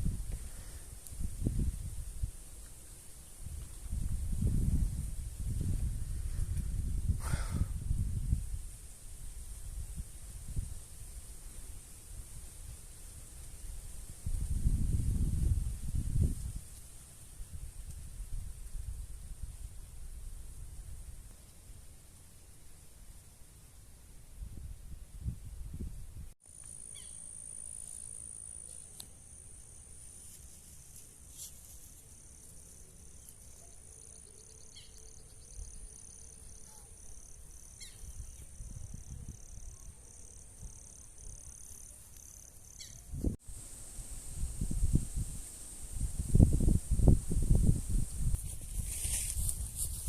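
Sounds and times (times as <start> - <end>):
wind rumble on microphone: 0.0 - 2.7, 3.4 - 21.3, 24.2 - 26.4, 38.0 - 39.7, 43.1 - 50.0
faint high-pitched hiss: 0.0 - 50.0
high insect drone: 26.4 - 50.0
pulsing insect call: 26.6 - 29.9, 31.6 - 48.1.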